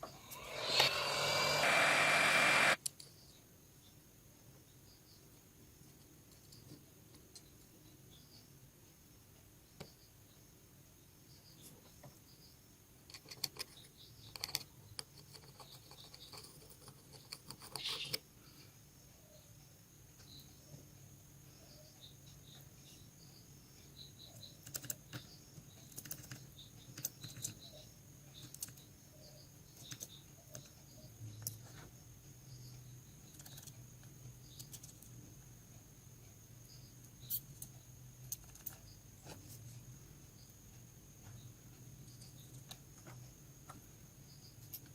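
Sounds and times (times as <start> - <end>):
steady low hum: 0.0 - 2.8.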